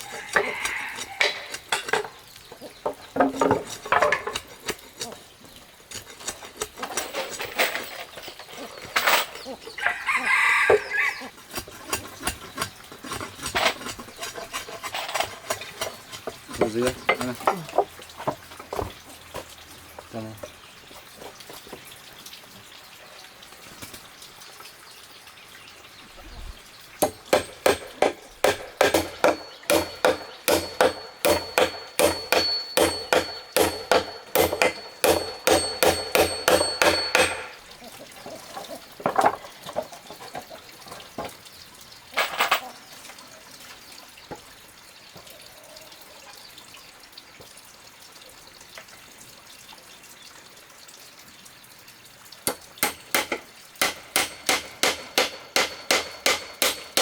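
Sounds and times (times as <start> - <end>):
scattered knocks and handling: 0.0 - 5.3, 5.9 - 9.5, 11.5 - 20.6, 27.0 - 37.6, 38.2 - 41.4, 42.1 - 42.7, 52.5 - 57.0
hammering with metallic ring: 27.0 - 37.6, 52.5 - 57.0.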